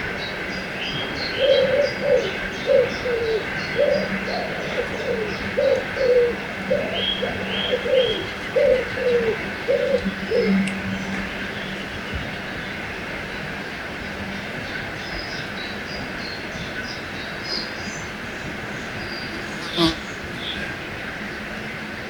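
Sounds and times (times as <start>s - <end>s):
dove cooing: 1.4s - 10.6s, 19.3s - 20.7s
small birds chirping: 18.8s - 20.7s.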